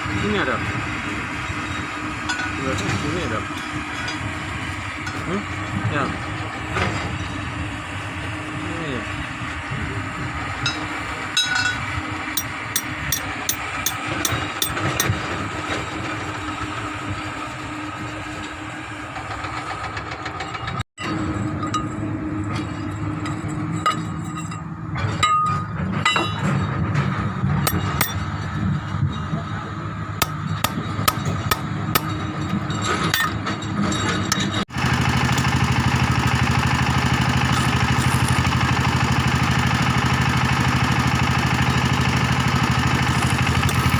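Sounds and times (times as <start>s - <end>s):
diesel engine running: 0.0s - 43.9s
tools tapping on metal: 11.4s - 11.8s, 12.4s - 15.2s, 30.2s - 34.6s.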